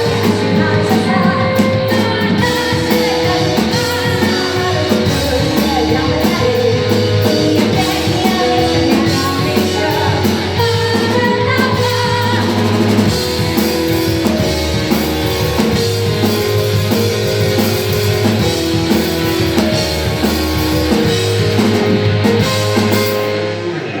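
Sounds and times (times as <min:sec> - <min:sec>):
person singing: 0:00.0 - 0:13.2
bass: 0:00.0 - 0:24.0
drum kit: 0:00.0 - 0:24.0
electric guitar: 0:00.0 - 0:24.0.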